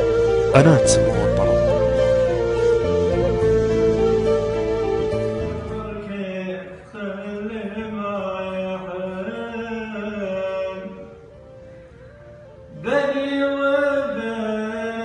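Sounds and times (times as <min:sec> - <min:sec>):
instrumental music: 0:00.0 - 0:06.3
man singing unaccompanied: 0:05.8 - 0:11.2, 0:12.7 - 0:15.0.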